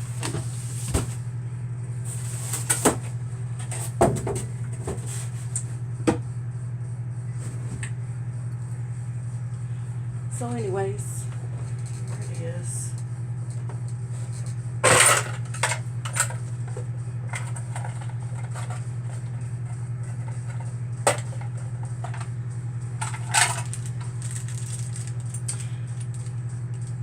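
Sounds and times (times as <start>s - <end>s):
steady low hum: 0.0s - 27.0s
small plastic parts rattling: 23.0s - 26.1s.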